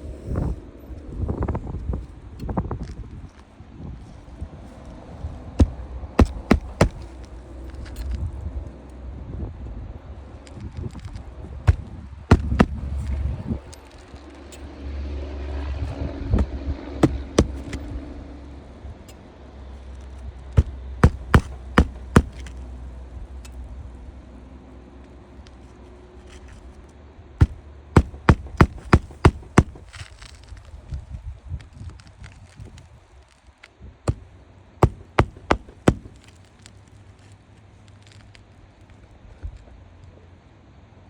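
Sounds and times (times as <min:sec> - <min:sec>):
hammer blows on roofing: 0:05.6 - 0:07.1, 0:11.7 - 0:13.1, 0:16.4 - 0:17.8, 0:20.6 - 0:22.5, 0:27.4 - 0:30.0, 0:34.8 - 0:36.3.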